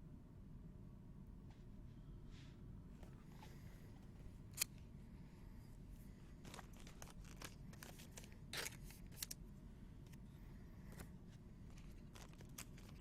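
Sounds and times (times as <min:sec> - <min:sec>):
low steady background noise: 0:00.0 - 0:13.0
cards scraping and flicking: 0:06.4 - 0:09.4, 0:10.9 - 0:13.0.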